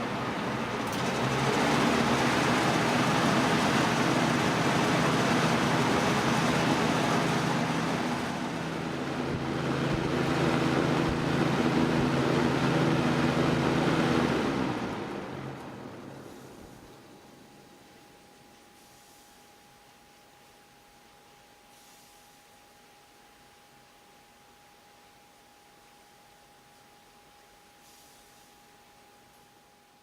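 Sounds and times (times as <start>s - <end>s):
box fan air rush: 0.0s - 17.4s
electric motor hum: 4.1s - 15.1s.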